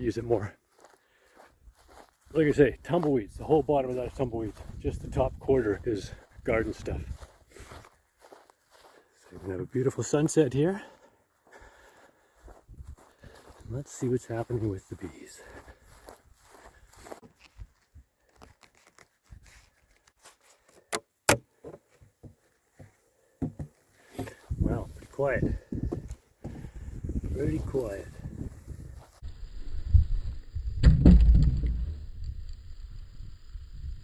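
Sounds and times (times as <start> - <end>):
faint footsteps outdoors: 0.0 - 29.3
knocks and clicks of beehive parts: 23.4 - 24.4.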